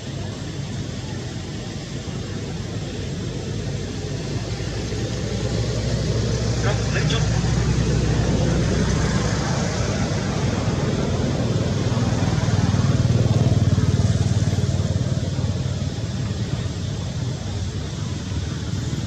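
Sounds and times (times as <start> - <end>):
small engine chugging: 0.0 - 19.0.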